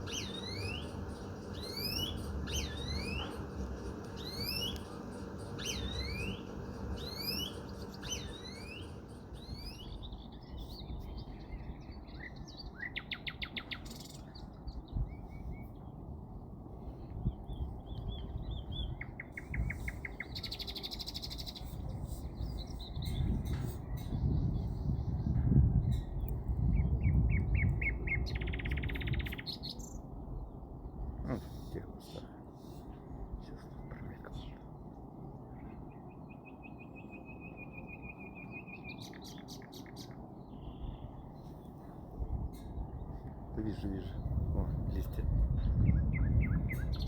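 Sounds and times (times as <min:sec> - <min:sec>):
small bird trilling: 0:00.0 - 0:10.9
low background rumble: 0:00.0 - 0:37.9, 0:40.1 - 0:47.0
songbird singing: 0:00.0 - 0:47.0.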